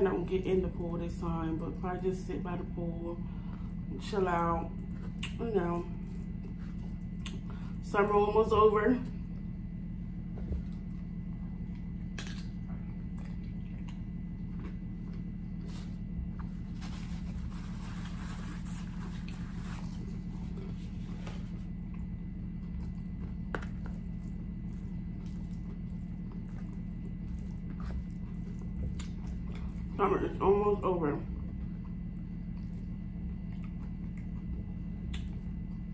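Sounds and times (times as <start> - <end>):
steady low hum: 0.0 - 35.9
chewing crunchy chips: 11.7 - 30.0, 31.4 - 35.9.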